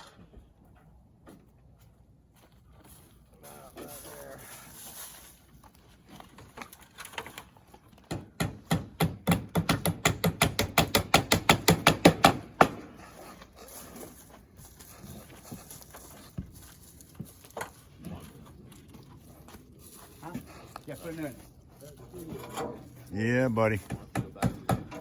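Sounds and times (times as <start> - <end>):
hammer strikes: 8.1 - 12.9, 23.8 - 25.0.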